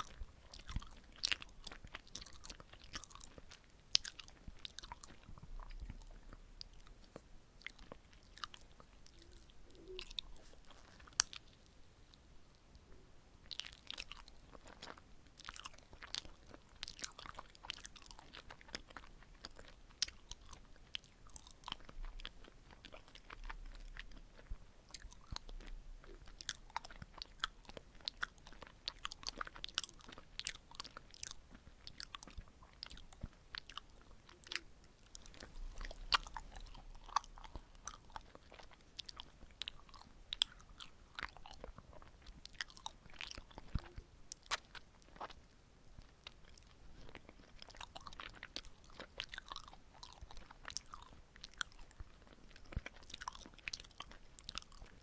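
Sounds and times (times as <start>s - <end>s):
sticky chewing mouth sounds: 0.0s - 12.2s, 13.4s - 55.0s.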